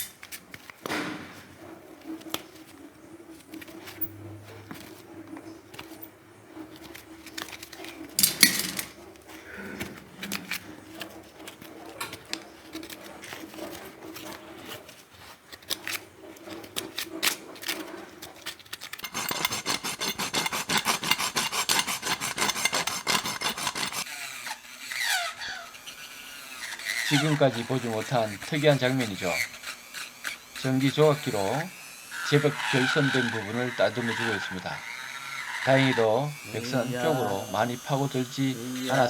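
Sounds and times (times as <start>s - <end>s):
scraping on a hoof: 0.0s - 39.0s
electric engraving tool buzzing: 19.0s - 39.0s.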